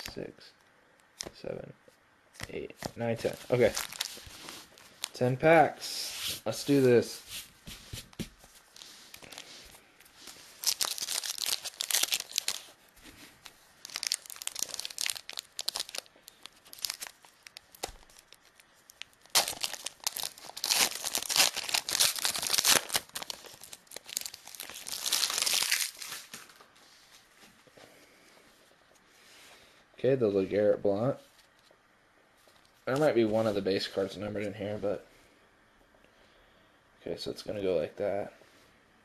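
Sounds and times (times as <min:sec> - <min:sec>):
wrapper tearing and crinkling: 0:03.5 - 0:05.2, 0:10.2 - 0:12.8, 0:13.4 - 0:26.6.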